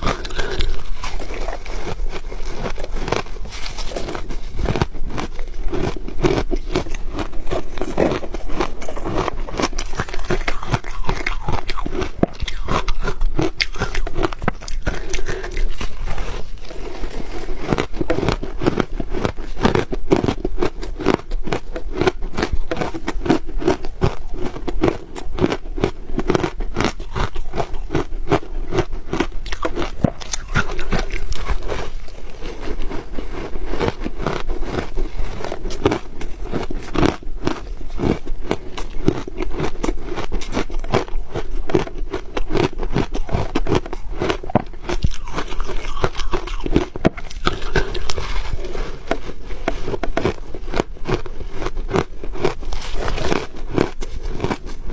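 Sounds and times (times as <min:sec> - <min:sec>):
ice being chewed: 0:00.0 - 0:54.9.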